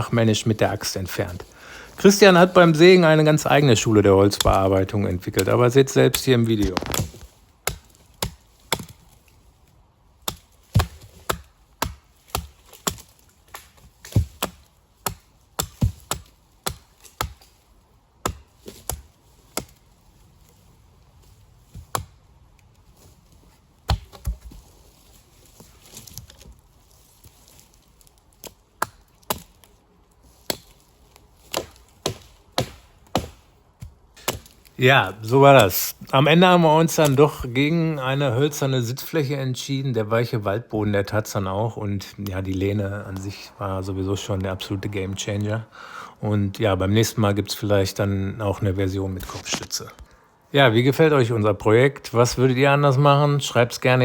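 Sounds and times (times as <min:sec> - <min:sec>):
axe chopping wood: 0:04.4 - 0:04.7, 0:06.1 - 0:09.0, 0:10.2 - 0:17.6, 0:18.2 - 0:19.8, 0:21.7 - 0:22.2, 0:23.8 - 0:24.6, 0:28.4 - 0:29.7, 0:30.4 - 0:30.8, 0:31.4 - 0:34.8.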